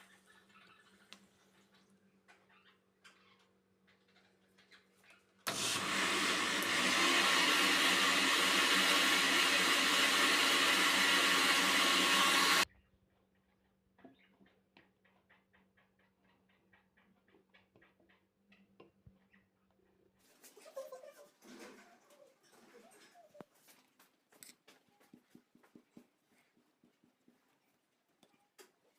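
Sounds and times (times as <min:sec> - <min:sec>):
household appliance motor running: 0:05.5 - 0:12.7.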